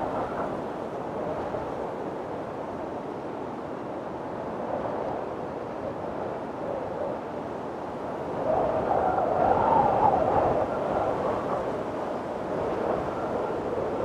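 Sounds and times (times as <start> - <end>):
strong wind blowing: 0.0 - 3.3, 4.3 - 14.0.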